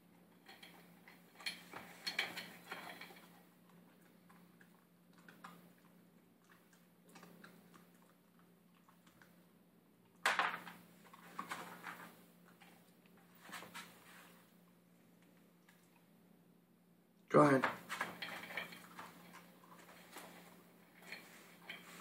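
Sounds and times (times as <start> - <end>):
puppy crunching dry kibble: 0.2 - 9.5
food and bowl clattering: 0.4 - 3.4, 10.2 - 12.1, 17.8 - 22.0.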